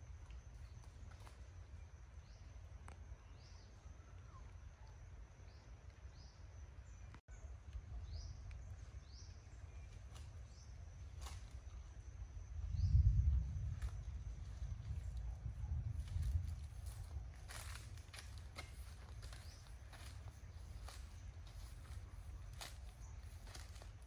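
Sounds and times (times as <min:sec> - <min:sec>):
low rumble: 0:12.4 - 0:20.3.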